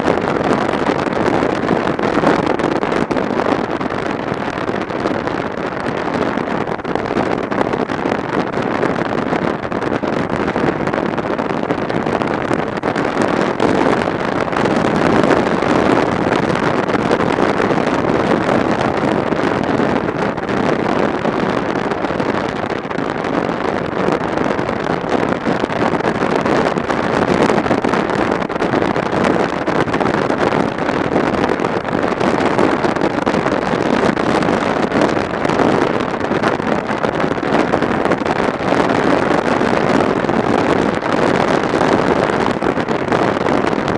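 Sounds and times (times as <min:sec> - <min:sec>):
wind rush on microphone: 0:00.0 - 0:43.9.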